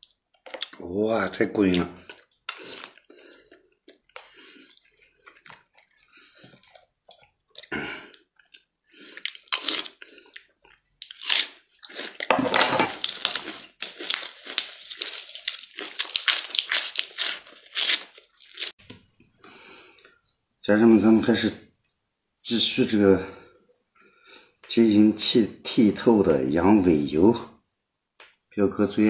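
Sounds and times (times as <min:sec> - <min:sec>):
chewing and mouth noises: 0:01.7 - 0:12.3, 0:12.9 - 0:18.7
crisp crunching of vegetable leaves: 0:11.0 - 0:12.3, 0:12.9 - 0:18.8.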